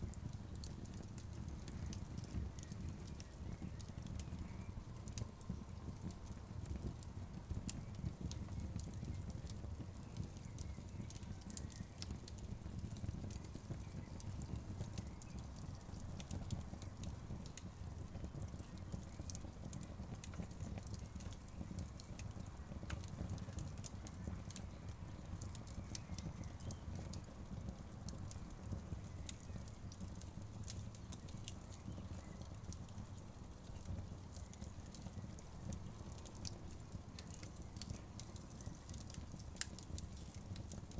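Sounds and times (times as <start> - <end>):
low steady fire rumble: 0.0 - 40.9
wood fire crackling: 0.0 - 40.9
sharp pops and snaps: 10.3 - 40.9.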